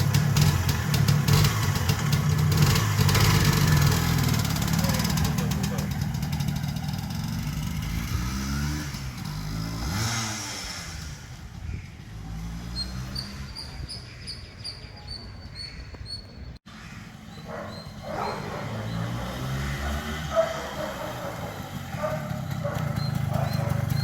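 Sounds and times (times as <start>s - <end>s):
motorcycle engine revving: 0.0s - 14.2s, 16.7s - 24.0s.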